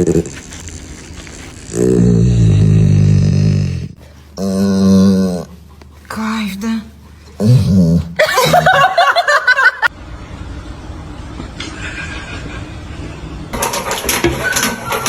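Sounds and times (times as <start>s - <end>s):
low background noise: 0.0s - 14.0s
person laughing: 7.5s - 9.9s.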